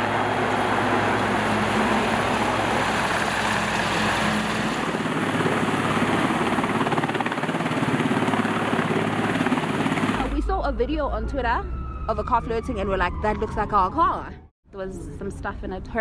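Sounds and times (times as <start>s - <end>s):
helicopter rotor chopping: 0.0s - 10.7s
helicopter engine hum: 0.0s - 10.8s.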